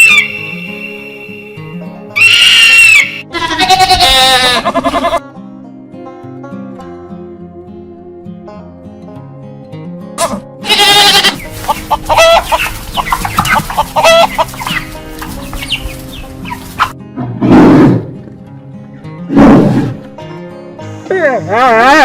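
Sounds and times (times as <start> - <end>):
guitar music: 0.0 - 17.4, 18.1 - 22.0
chickens clucking: 11.3 - 17.0.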